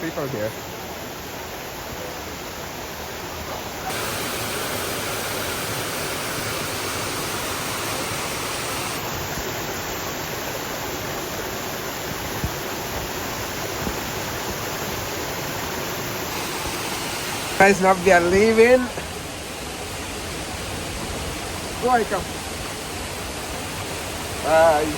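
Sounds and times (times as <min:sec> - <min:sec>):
waterfall rushing: 0:03.7 - 0:11.1, 0:14.2 - 0:20.4.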